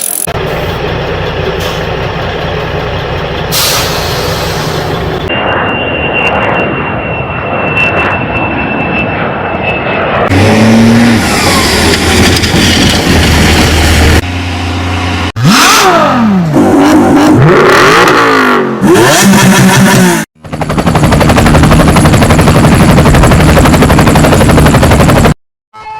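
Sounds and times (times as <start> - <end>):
vehicle engines running: 0.0 - 5.3
high engine whine: 0.0 - 25.4
engine revving: 10.2 - 20.3.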